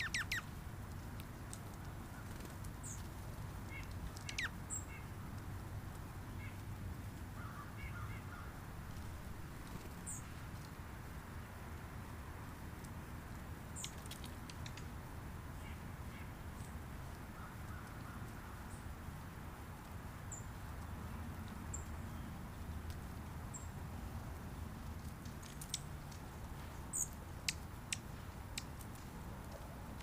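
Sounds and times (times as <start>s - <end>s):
small birds chirping: 0.0s - 0.6s, 1.5s - 10.8s, 13.7s - 19.0s, 20.2s - 23.9s, 25.0s - 30.0s
low outdoor rumble: 0.0s - 30.0s.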